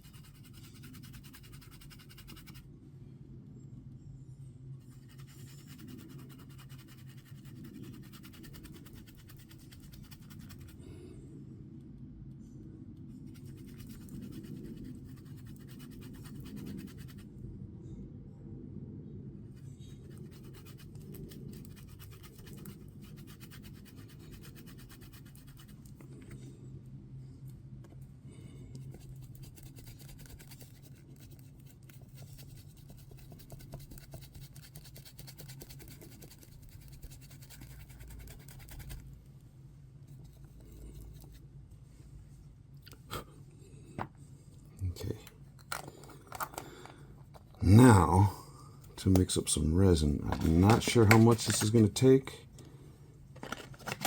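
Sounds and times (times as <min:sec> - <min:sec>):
brush scratching in mold: 0:00.0 - 0:02.6, 0:04.8 - 0:10.8, 0:13.1 - 0:17.3, 0:19.6 - 0:26.3, 0:28.7 - 0:39.2, 0:40.0 - 0:41.5
steady low hum: 0:00.0 - 0:54.0.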